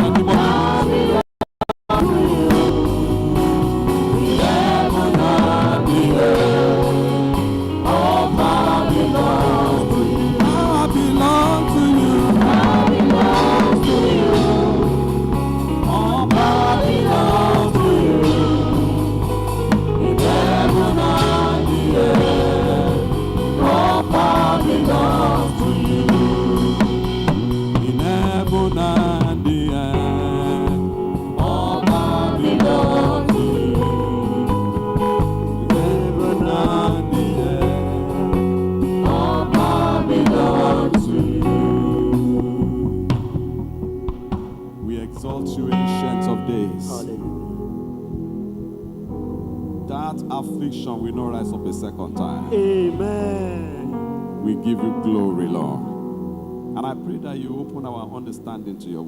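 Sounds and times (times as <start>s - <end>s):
choir singing gospel: 0.0s - 1.2s, 1.9s - 49.2s, 49.8s - 59.0s
drum kit beat: 0.0s - 1.2s, 1.9s - 47.1s
held bass notes: 0.0s - 1.2s, 1.9s - 59.0s
low instrumental accompaniment: 2.0s - 59.0s.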